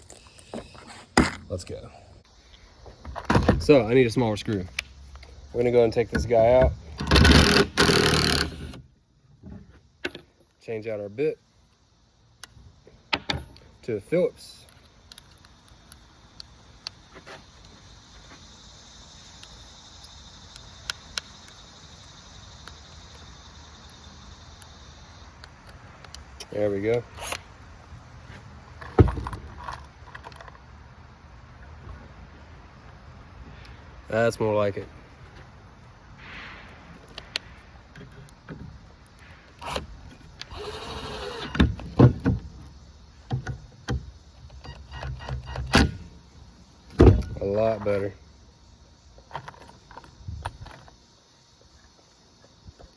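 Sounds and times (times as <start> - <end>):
crickets chirring: 0.0 - 52.9
cordless drill driving screw into wood: 7.0 - 8.8, 39.6 - 41.7
knocks and clicks of wood and tools: 12.4 - 13.7, 28.8 - 30.6, 41.5 - 46.0.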